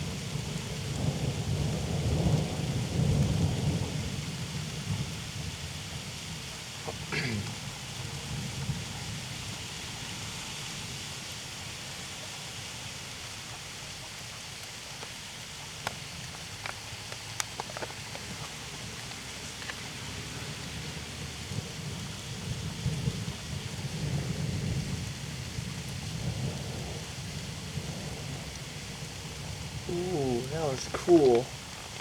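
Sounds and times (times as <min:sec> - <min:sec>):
steady rain falling: 0:00.0 - 0:32.0
thunder rumbling: 0:20.1 - 0:32.0.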